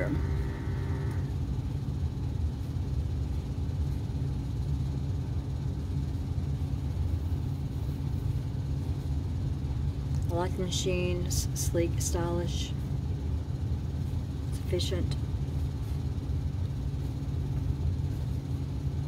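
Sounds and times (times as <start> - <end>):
coffee maker rumbling: 0.0 - 3.8.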